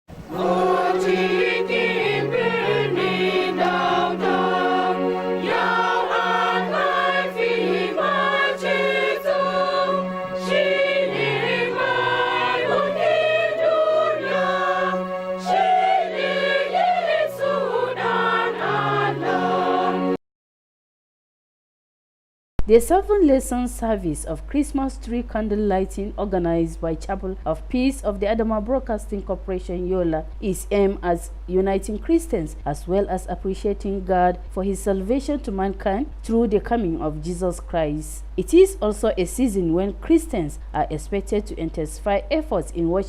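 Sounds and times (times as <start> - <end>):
choir singing a carol: 0.1 - 20.2
low held accompaniment notes: 0.1 - 20.2.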